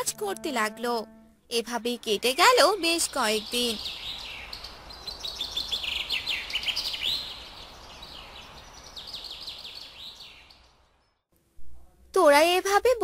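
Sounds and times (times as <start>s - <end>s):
faint background hiss: 0.0s - 13.0s
small birds twittering: 1.8s - 11.3s.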